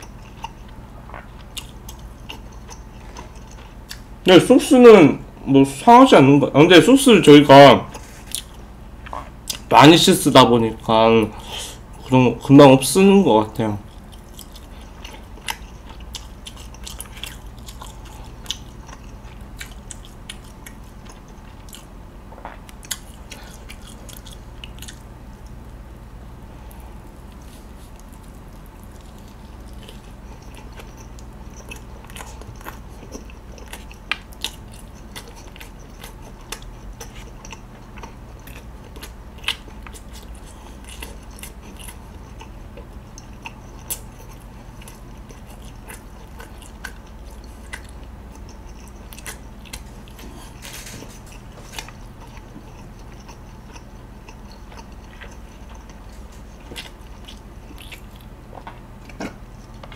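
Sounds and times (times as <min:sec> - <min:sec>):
wet chewing clicks and smacks: 0:00.0 - 0:04.1, 0:13.9 - 0:25.8, 0:26.7 - 0:59.9
steady low hum: 0:00.0 - 0:59.9.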